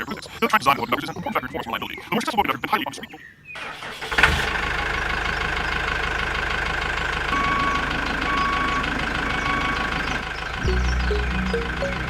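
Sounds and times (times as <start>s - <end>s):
vehicle engine idling: 4.3s - 12.0s
repeating beep: 10.7s - 12.0s.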